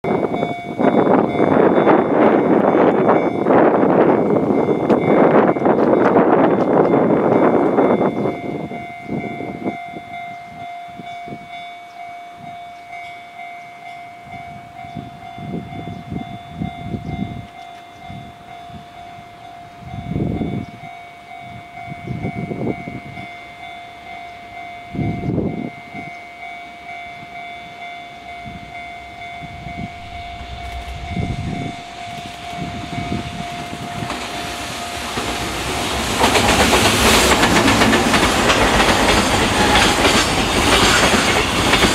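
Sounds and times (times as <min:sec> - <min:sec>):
train wheels on rail: 0:00.1 - 0:41.9
steady high tone: 0:18.1 - 0:36.3
low rumbles: 0:28.6 - 0:41.7.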